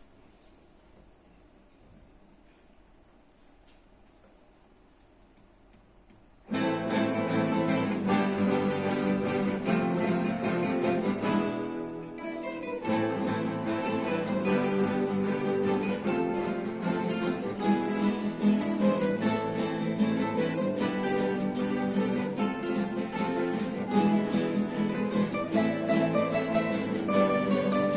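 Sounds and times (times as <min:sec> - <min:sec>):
acoustic guitars playing: 0:06.4 - 0:27.9.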